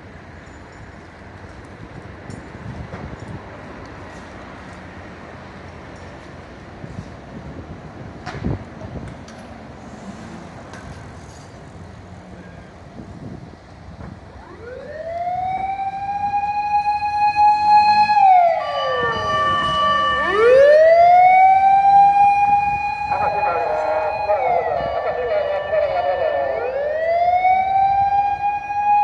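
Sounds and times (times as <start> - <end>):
siren wailing: 14.3 - 29.0.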